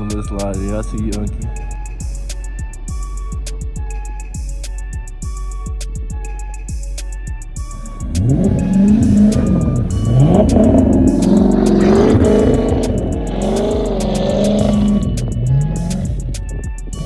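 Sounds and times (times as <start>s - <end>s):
music with a beat: 0.0s - 17.0s
car engine revving: 7.7s - 17.0s.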